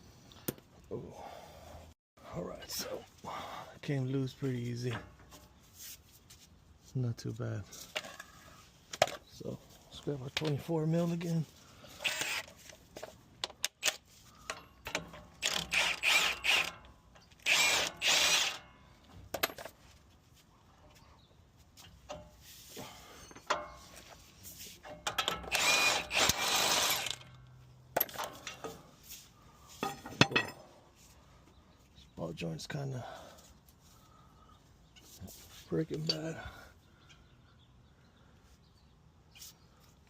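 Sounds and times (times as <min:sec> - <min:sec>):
metal tools clinking: 0:24.8 - 0:25.6, 0:26.3 - 0:28.9, 0:29.8 - 0:30.7.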